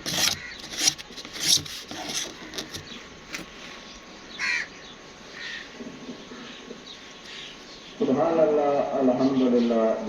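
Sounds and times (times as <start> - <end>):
scraping strokes: 0.0 - 3.8.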